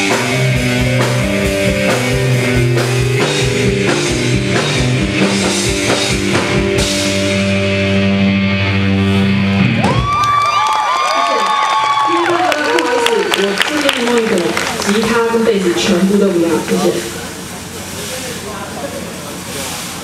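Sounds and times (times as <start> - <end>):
drum kit beat: 0.0 - 10.3
bass and keyboard notes: 0.0 - 10.6.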